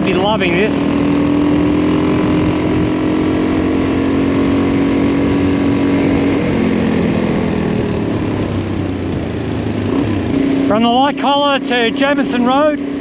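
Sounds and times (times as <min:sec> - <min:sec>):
motorcycle engine cruising: 0:00.0 - 0:13.0
wind rush: 0:01.6 - 0:11.0.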